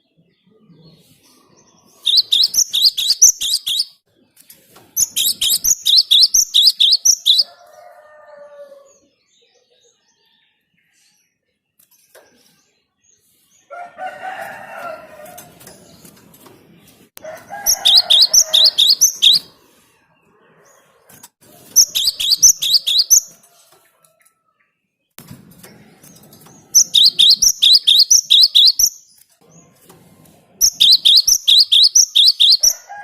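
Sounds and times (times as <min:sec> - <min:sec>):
bird harsh chattering call: 0:02.0 - 0:04.0, 0:05.0 - 0:07.5, 0:17.7 - 0:19.5, 0:21.8 - 0:23.3, 0:26.8 - 0:29.0, 0:30.6 - 0:32.8
bird sharp high-pitched notes: 0:02.1 - 0:04.0, 0:05.0 - 0:07.5, 0:21.8 - 0:23.3, 0:26.8 - 0:29.1, 0:30.6 - 0:32.8.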